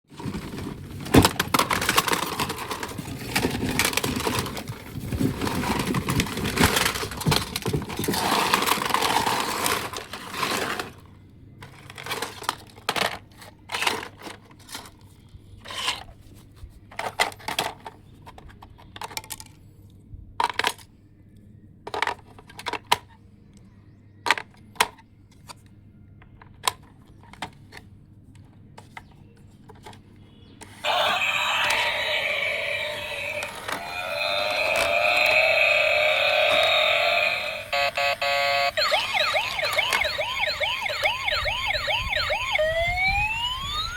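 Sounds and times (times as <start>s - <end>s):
hard objects clattering and rattling: 0.1s - 15.0s.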